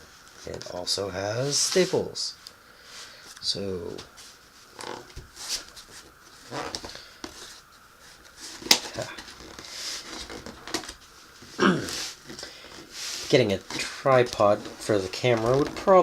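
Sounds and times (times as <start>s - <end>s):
cardboard scraping and rustling: 3.9s - 16.0s.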